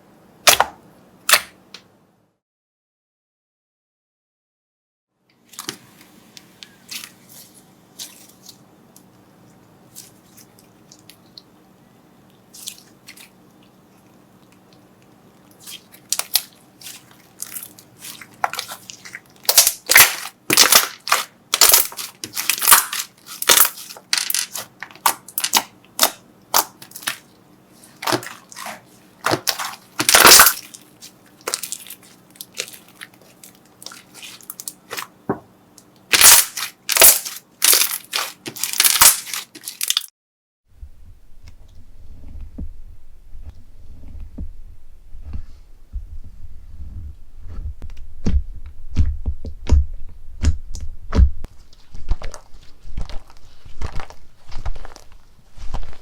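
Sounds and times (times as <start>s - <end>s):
slime crackling and crunching: 15.5s - 35.1s, 36.1s - 40.1s.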